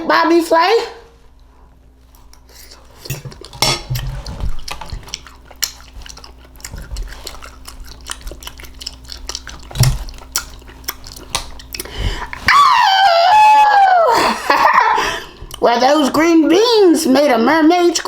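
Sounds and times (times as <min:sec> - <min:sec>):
wet chewing and mouth smacks: 0:02.1 - 0:12.6, 0:15.3 - 0:15.7.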